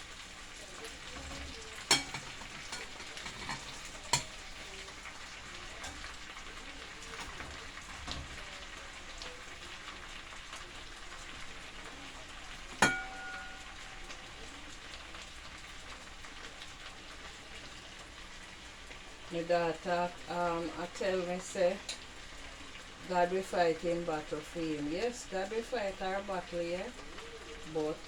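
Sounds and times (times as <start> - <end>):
fish frying hiss: 0.0 - 28.0
metal clinks against pot: 1.1 - 4.4, 12.8 - 14.1.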